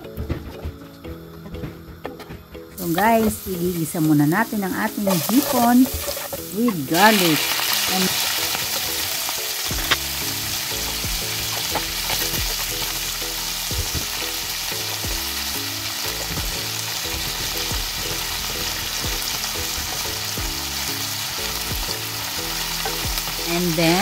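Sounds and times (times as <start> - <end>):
low background music: 0.0 - 24.0
shrimp sizzling in frying pan: 2.8 - 24.0
wooden spatula scraping pan: 4.5 - 9.2.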